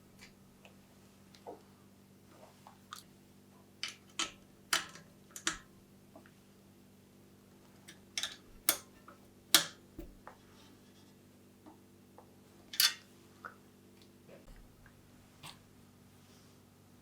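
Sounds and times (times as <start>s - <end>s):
metal bike parts clicking and clattering: 12.7s - 13.1s.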